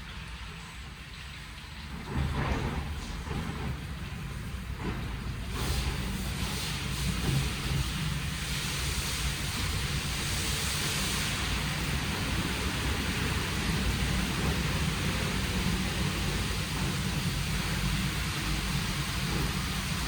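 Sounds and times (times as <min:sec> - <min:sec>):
car wash water spray hiss: 0:04.2 - 0:20.0.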